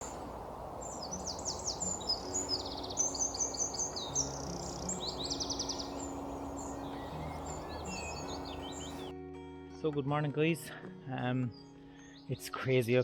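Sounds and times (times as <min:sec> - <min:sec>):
songbirds singing: 0:00.0 - 0:09.1.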